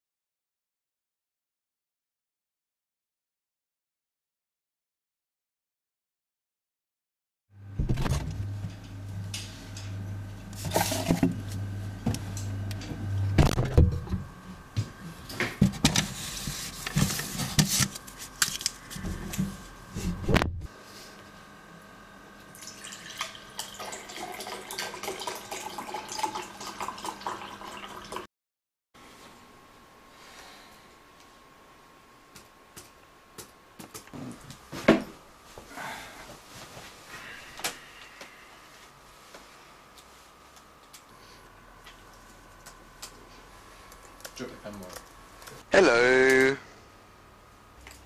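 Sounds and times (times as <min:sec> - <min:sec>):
liquid pouring into a glass: 0:22.6 - 0:28.2.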